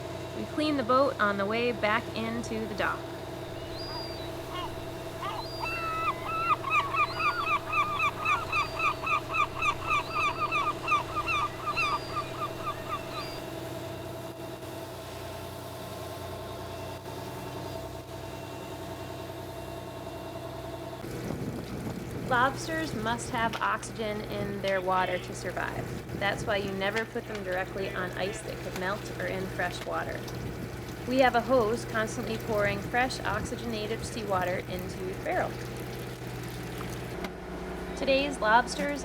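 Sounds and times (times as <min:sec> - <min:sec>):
boat engine running: 0:00.0 - 0:39.0
bird calling sharp repeated notes: 0:03.4 - 0:13.5.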